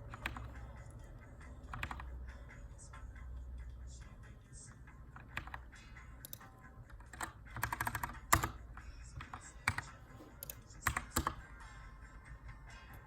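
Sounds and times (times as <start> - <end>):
mechanical keyboard typing: 0.0 - 0.7, 1.6 - 2.2, 5.1 - 11.5.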